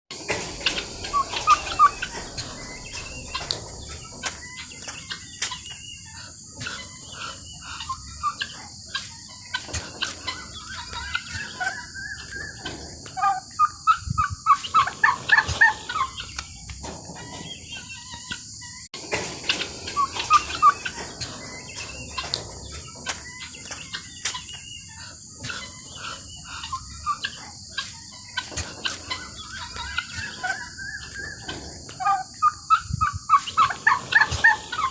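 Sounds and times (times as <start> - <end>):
guineafowl calling: 0.2 - 34.9
turkeys calling: 0.2 - 34.9
steady high-pitched drone: 0.4 - 16.7.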